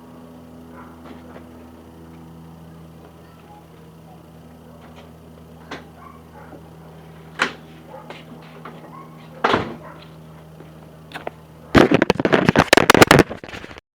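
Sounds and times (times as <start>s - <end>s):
car engine idling: 0.5s - 11.7s
loud knocks and rattles: 9.4s - 9.8s.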